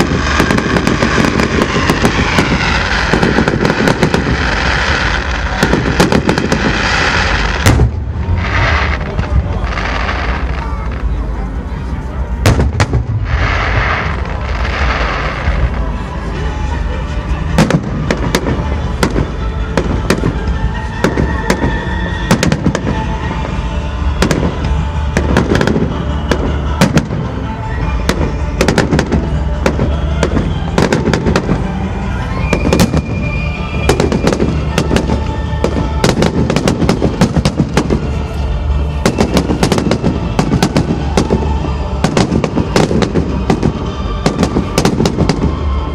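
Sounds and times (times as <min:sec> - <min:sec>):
firework hissing rush: 0:00.0 - 0:10.8
fireworks bangs and crackling: 0:00.0 - 0:45.9
music playing: 0:00.0 - 0:45.9.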